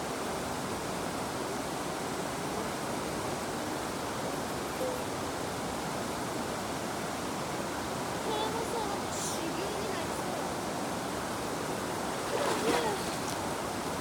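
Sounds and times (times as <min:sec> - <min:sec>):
river water flowing: 0:00.1 - 0:14.0.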